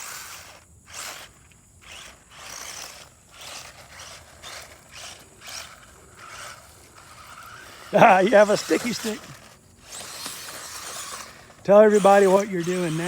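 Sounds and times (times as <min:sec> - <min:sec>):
toy truck electric motor whirring: 0:00.0 - 0:13.0.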